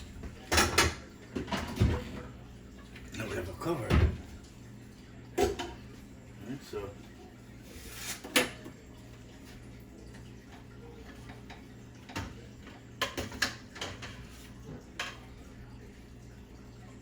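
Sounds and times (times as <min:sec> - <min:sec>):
cookware and utensils clinking: 0:00.0 - 0:04.4, 0:05.3 - 0:05.9, 0:10.1 - 0:15.9.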